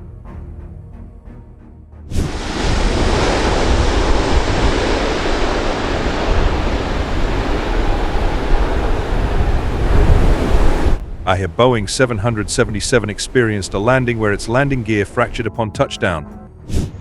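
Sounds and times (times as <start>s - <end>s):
music: 0.0s - 2.1s, 14.8s - 17.0s
rushing noise with low rumble: 2.1s - 15.4s.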